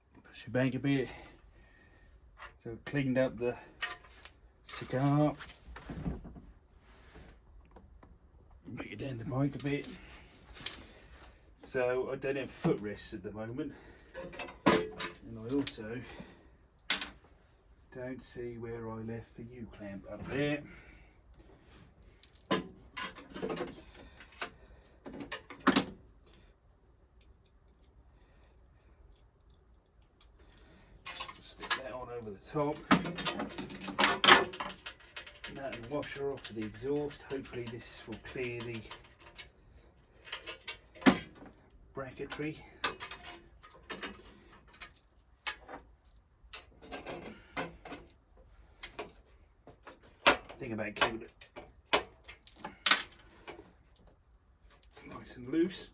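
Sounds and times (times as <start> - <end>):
metal parts clinking: 14.1 - 16.2, 27.2 - 39.6, 40.2 - 55.9
metal parts knocking and clicking: 32.7 - 39.6.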